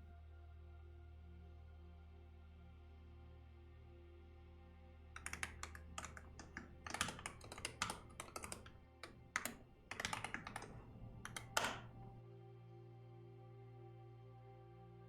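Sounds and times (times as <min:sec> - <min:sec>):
computer keyboard typing: 0:05.2 - 0:12.2.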